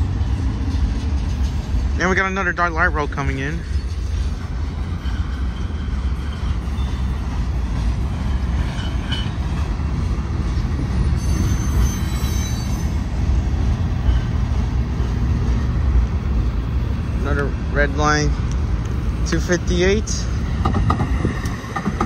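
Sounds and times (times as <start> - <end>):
freight train wheels rumbling on rails: 0.0 - 22.0
light rail train arriving: 0.0 - 22.0
high wheel squeal: 3.4 - 9.6, 10.8 - 13.2, 13.8 - 15.1.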